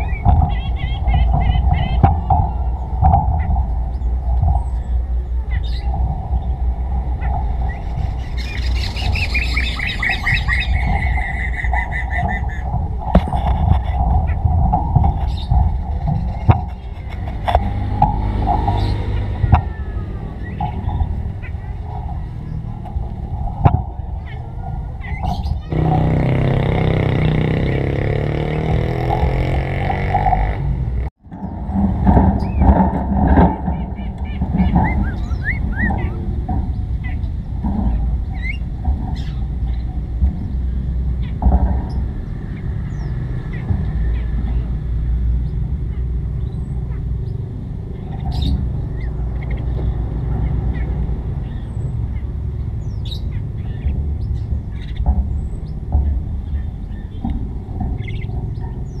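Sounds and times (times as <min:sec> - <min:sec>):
songbird trilling: 0:00.0 - 0:12.8
motor engine droning: 0:00.0 - 0:59.0
steady low rumble: 0:00.0 - 0:59.0.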